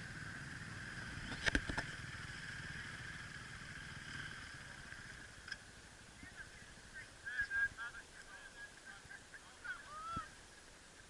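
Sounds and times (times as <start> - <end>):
dirt bikes buzzing: 0.0 - 8.0.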